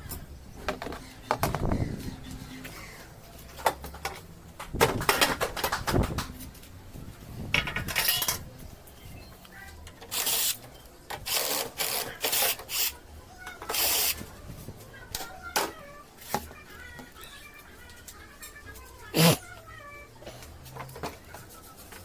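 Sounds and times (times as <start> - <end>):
metal parts clicking and clattering: 7.6 - 8.4.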